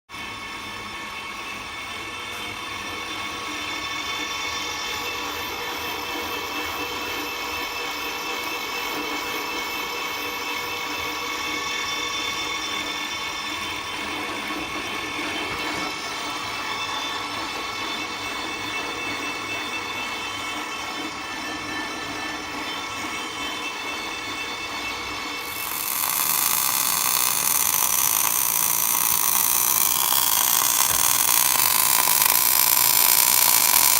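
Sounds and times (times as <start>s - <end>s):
harsh hissing noise: 25.4s - 33.9s
power tool motor whining: 25.4s - 33.9s.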